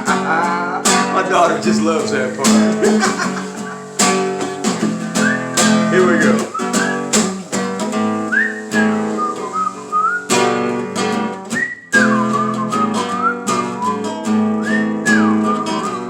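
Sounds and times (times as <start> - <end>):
acoustic guitar strumming: 0.0 - 16.0
whistled melody: 3.5 - 16.0.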